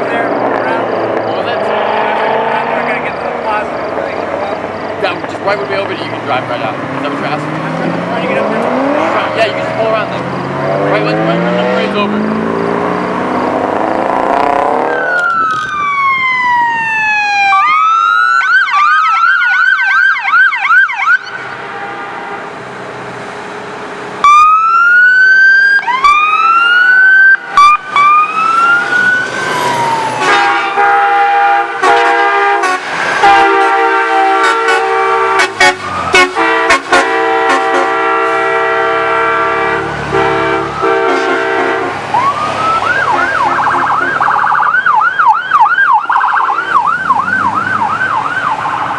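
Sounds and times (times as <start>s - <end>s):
emergency siren wailing and yelping: 14.6s - 21.5s, 24.2s - 32.1s, 35.6s - 36.6s, 39.0s - 48.9s
multi-toned horn blast: 21.2s - 22.6s, 30.1s - 42.1s, 43.0s - 44.3s.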